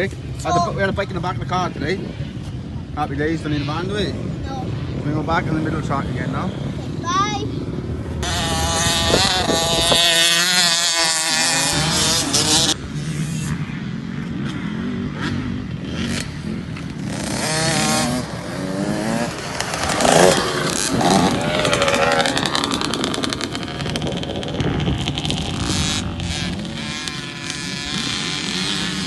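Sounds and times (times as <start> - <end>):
two-stroke motocross bike revving: 3.2 - 29.0.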